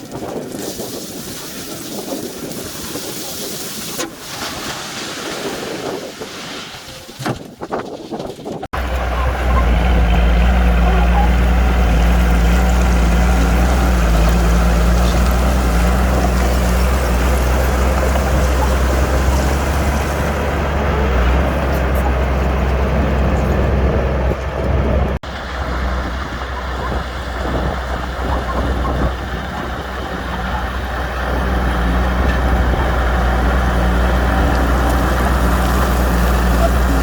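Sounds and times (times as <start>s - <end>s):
heavy diesel engine drone: 8.8s - 37.0s.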